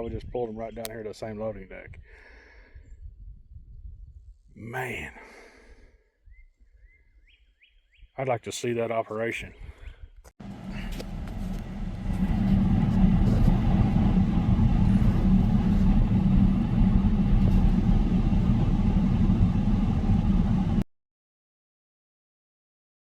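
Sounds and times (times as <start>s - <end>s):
vehicle engine rumbling: 10.4s - 20.8s.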